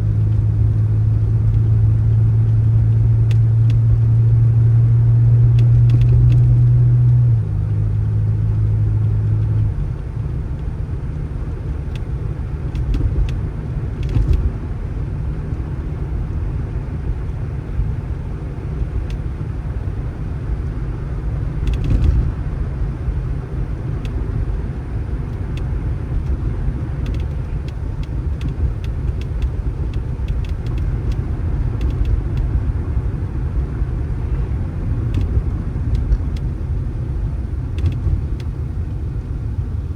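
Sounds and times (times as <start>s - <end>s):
vehicle engine rumbling: 0.0s - 39.9s
faint clicks: 27.0s - 31.2s, 31.8s - 32.5s.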